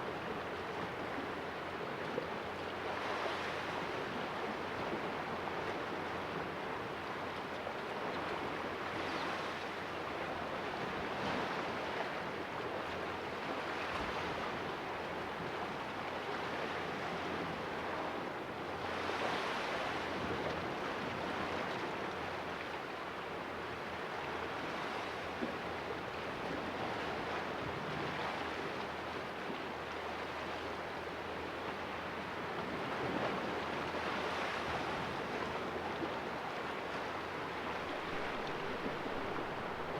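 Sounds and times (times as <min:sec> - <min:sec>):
small waves splashing on rocks: 0:37.8 - 0:39.9.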